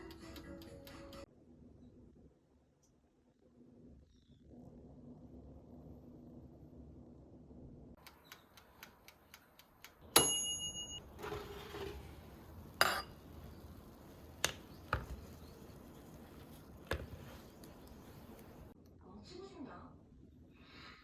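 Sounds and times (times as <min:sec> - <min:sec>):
sharp metallic clink: 0:10.2 - 0:11.0.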